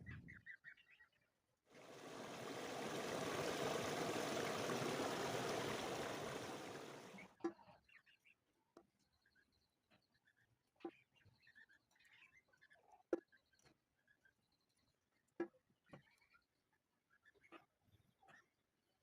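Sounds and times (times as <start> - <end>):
water running: 1.8 - 7.2.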